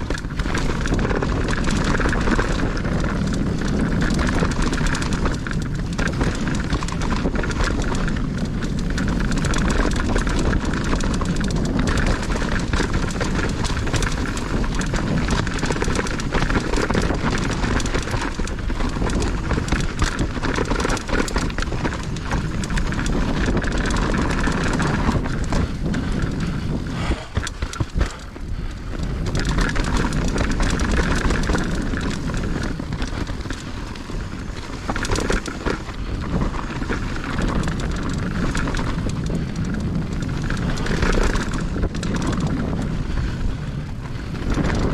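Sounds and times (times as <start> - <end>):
bike rattling over bumps: 0.0 - 44.9
bike tyre noise on dirt: 0.0 - 44.9
wind rushing: 21.0 - 37.8.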